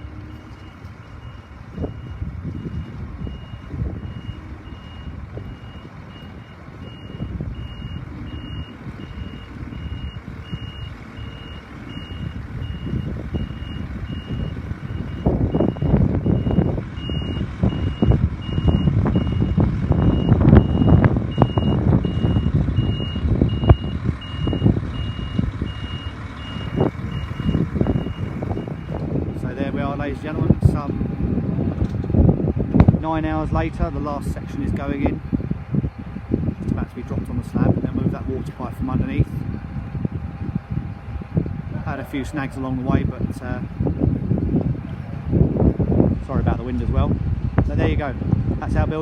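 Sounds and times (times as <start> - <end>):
reversing alarm beeping: 0.0 - 30.6
diesel engine running: 0.0 - 49.0.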